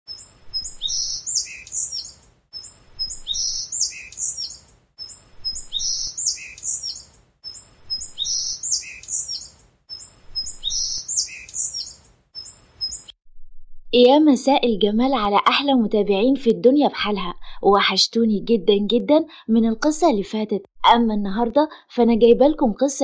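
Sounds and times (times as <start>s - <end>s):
bird whistling and chirping: 0.1s - 13.1s.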